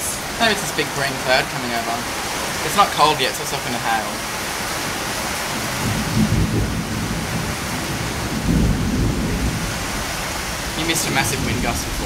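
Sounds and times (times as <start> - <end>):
heavy rain hiss: 0.0 - 12.0
thunder rumbling: 5.5 - 12.0.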